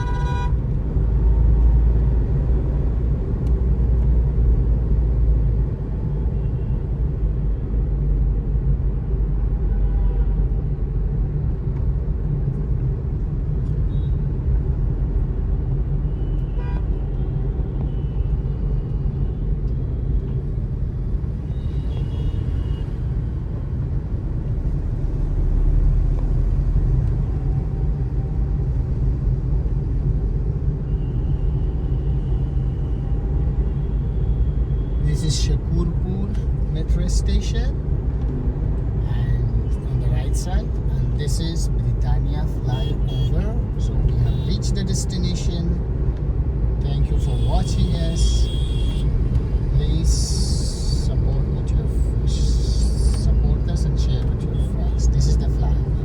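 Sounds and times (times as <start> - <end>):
car horn toots: 0.0 - 0.6, 42.7 - 43.6, 47.2 - 49.1
road and traffic rumble: 0.0 - 56.0.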